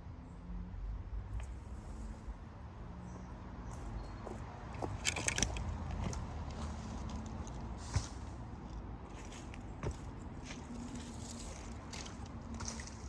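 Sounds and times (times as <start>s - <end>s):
dry stems crackling and snapping: 4.8s - 7.7s, 10.4s - 13.0s.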